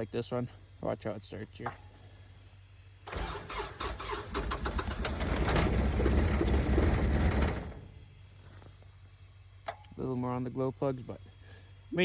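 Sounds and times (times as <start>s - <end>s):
diesel engine firing: 3.0s - 8.2s
starter motor cranking: 3.1s - 7.9s.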